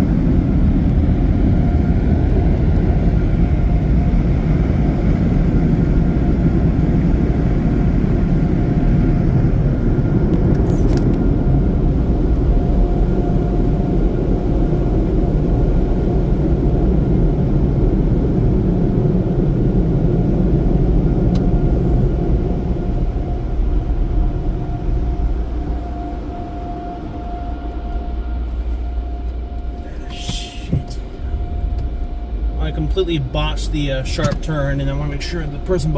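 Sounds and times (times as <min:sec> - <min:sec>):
constant whine: 0:00.0 - 0:35.9
car wash dryers blowing: 0:21.6 - 0:35.9.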